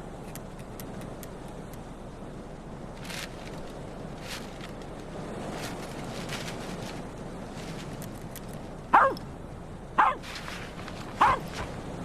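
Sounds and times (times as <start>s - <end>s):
wind blowing: 0.0s - 12.0s
dog barking: 8.9s - 9.2s, 10.0s - 10.2s, 11.2s - 11.7s.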